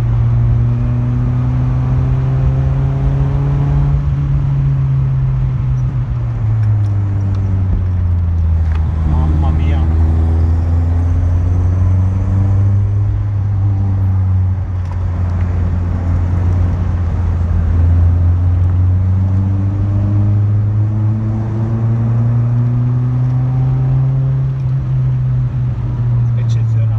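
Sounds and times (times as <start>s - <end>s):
car engine running: 0.0s - 19.5s.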